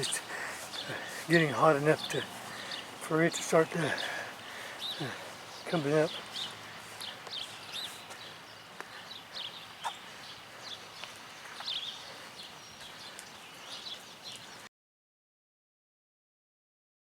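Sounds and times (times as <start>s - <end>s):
birds chirping: 0.0s - 14.7s
faint outdoor background noise: 0.0s - 14.7s.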